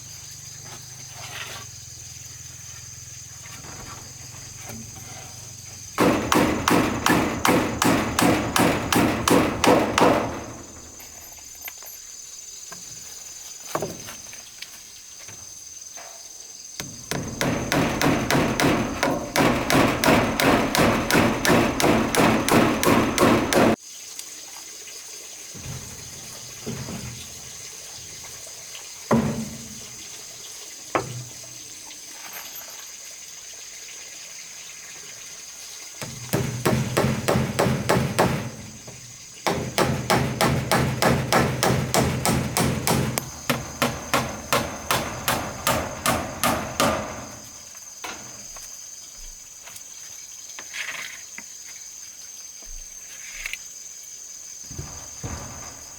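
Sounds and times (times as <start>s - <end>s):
high insect drone: 0.0s - 55.9s
hammer striking wood: 6.0s - 11.0s, 16.8s - 23.8s, 29.1s - 29.6s, 36.0s - 47.6s.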